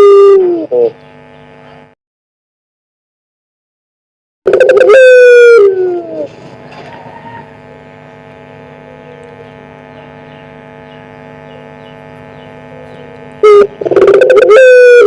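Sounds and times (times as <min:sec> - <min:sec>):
dove cooing: 0:00.0 - 0:01.0, 0:04.5 - 0:06.4, 0:08.7 - 0:10.5, 0:11.4 - 0:15.0
steady hum of fixed tones: 0:00.0 - 0:02.0, 0:04.5 - 0:15.0.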